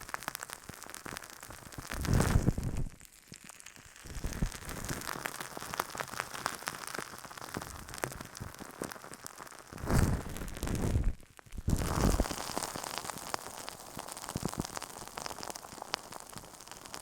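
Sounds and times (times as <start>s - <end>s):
crackling clicks on microphone: 0.0s - 17.0s.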